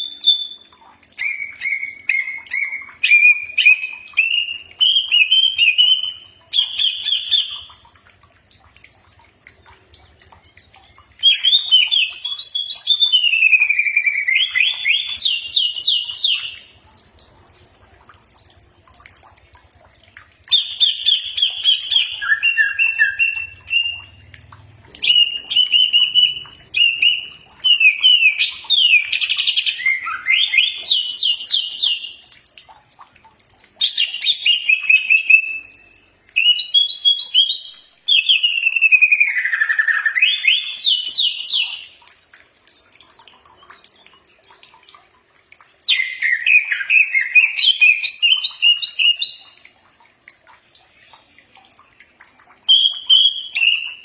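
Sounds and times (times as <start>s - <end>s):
bird singing whistles and trills: 0.0s - 7.8s, 11.0s - 16.7s, 20.5s - 24.2s, 25.0s - 32.2s, 33.8s - 41.9s, 45.9s - 49.6s, 52.6s - 54.0s.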